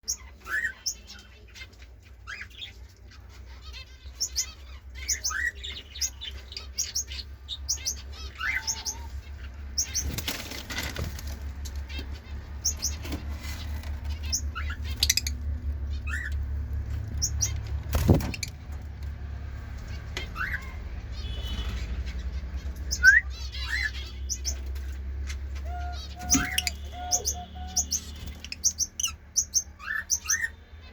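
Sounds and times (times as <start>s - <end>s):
bird chirping: 0.0s - 30.9s
wing flutters and rustling: 9.9s - 12.0s.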